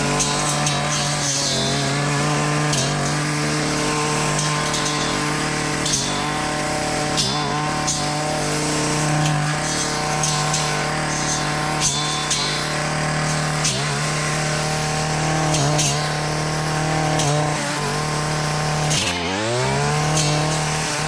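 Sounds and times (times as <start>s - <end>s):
blade ticking on stems: 0.0s - 21.0s
brush cutter engine running: 0.0s - 21.0s.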